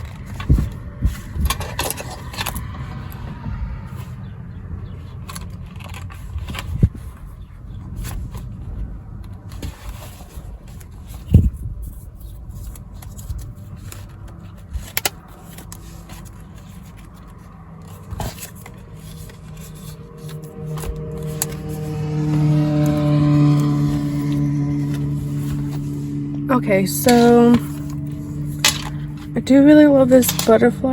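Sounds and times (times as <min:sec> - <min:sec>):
notebook cover scraping and rubbing: 0:04.8 - 0:30.9.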